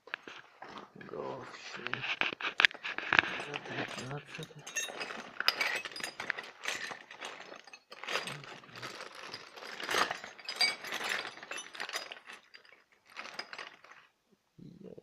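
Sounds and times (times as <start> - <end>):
metal tool clinks: 3.3 - 13.8.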